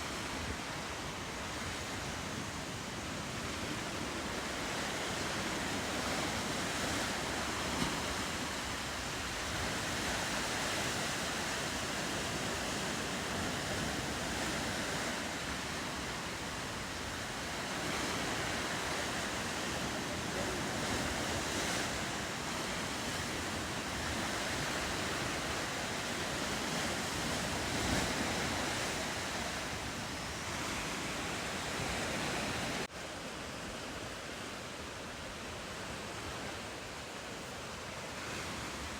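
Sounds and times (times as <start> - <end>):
ocean waves: 0.0 - 38.9.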